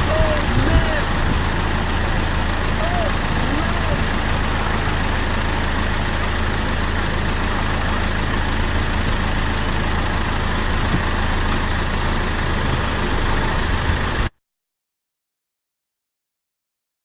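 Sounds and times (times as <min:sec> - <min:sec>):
low engine hum: 0:00.0 - 0:14.4.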